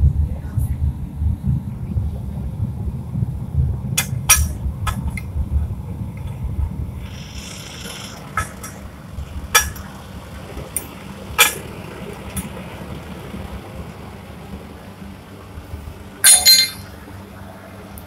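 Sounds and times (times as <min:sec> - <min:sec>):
gas furnace burner rumbling: 0:00.0 - 0:18.0
sharp metallic clinks: 0:16.2 - 0:17.0.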